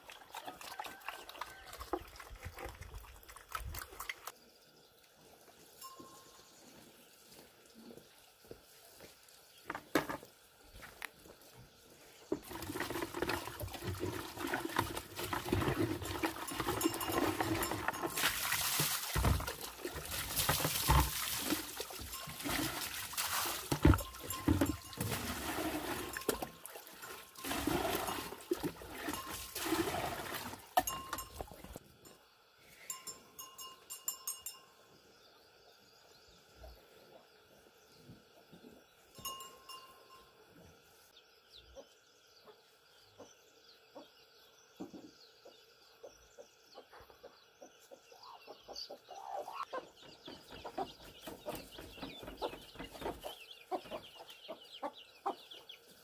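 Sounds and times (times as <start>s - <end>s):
water splashing and running: 0.0s - 4.4s, 12.3s - 31.8s.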